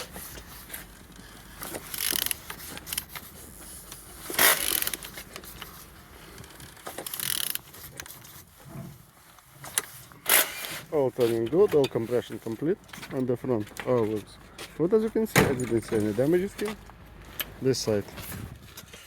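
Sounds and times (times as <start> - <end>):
wrench ratchet clicks: 1.9 - 3.1, 4.3 - 5.1, 7.0 - 7.6.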